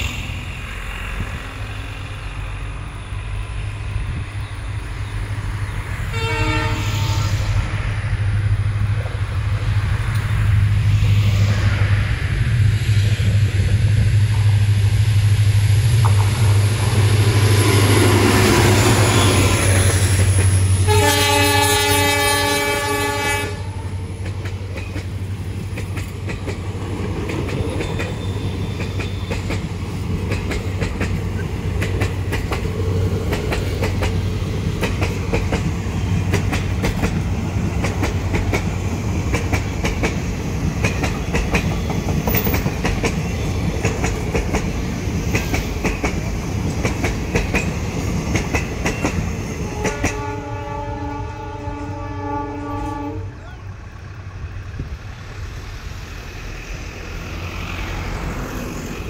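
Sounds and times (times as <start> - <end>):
locomotive low drone: 0.0 - 40.8, 49.7 - 59.0
train horn blast: 6.1 - 7.7, 20.8 - 24.0, 49.6 - 53.4
wheels clacking over rail joints: 24.1 - 50.3.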